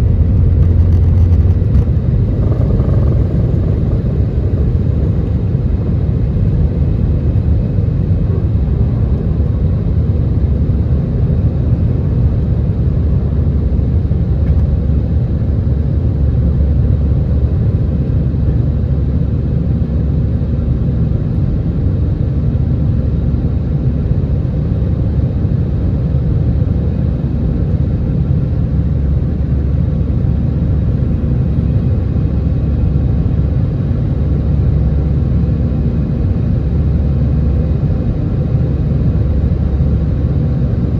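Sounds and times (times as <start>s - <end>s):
faint hum: 0.0s - 7.8s
jet engine rumble: 0.0s - 9.9s, 27.2s - 40.9s.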